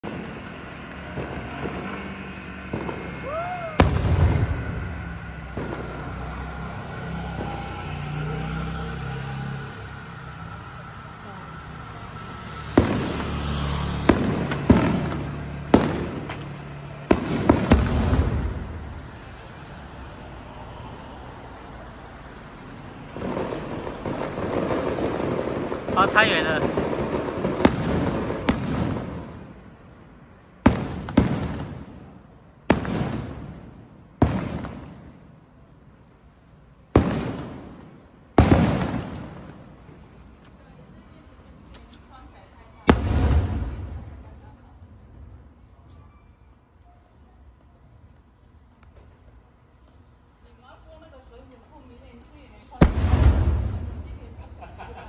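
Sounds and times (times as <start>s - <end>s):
fireworks bangs with rumble: 0.0s - 6.5s, 12.7s - 19.1s, 23.1s - 29.7s, 30.6s - 35.2s, 36.9s - 40.0s, 42.8s - 45.3s, 52.6s - 55.0s.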